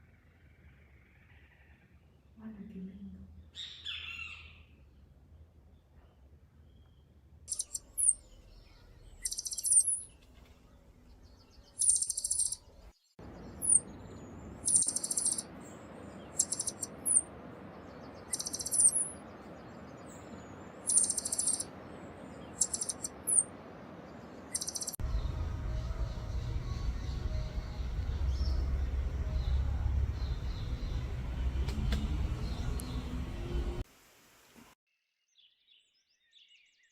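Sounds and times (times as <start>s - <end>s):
songbird buzzy calls: 7.5s - 8.2s, 9.2s - 10.2s, 11.8s - 12.7s, 14.6s - 17.3s, 18.0s - 19.4s, 20.8s - 23.5s, 24.4s - 25.0s
low rumble: 12.6s - 33.8s
background hiss: 33.0s - 34.8s.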